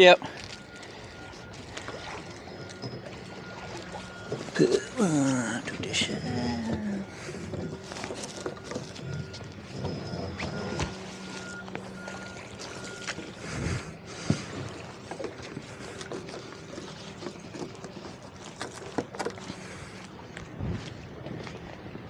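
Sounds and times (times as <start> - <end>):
water wash: 0.0 - 20.0
boat engine hum: 0.0 - 22.0
wind noise: 20.4 - 22.0.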